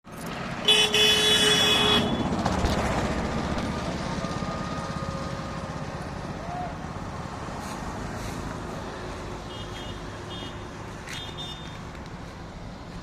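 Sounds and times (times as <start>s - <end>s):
engine rumbling: 0.0s - 13.0s
vehicle horn: 0.6s - 2.3s, 9.5s - 11.8s.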